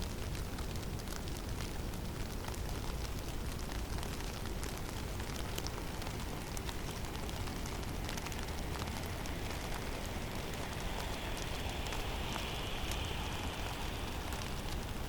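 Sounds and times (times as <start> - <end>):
snow ticking and pattering: 0.0 - 15.0
storm wind rushing: 4.4 - 15.0.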